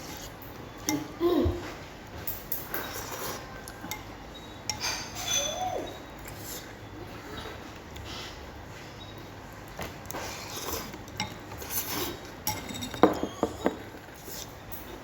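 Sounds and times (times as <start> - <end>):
dishes and utensils clinking: 0.0 - 6.4, 11.1 - 15.0.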